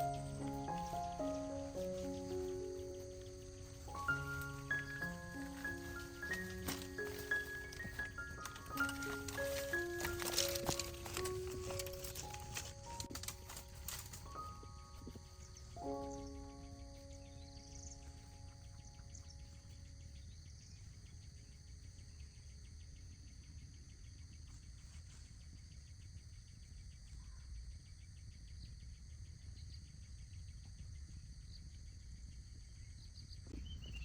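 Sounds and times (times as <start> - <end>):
bird chirps: 0.0 - 24.8, 32.9 - 34.0
high insect whine: 0.0 - 34.0
insects pulsing chirp: 0.0 - 34.0.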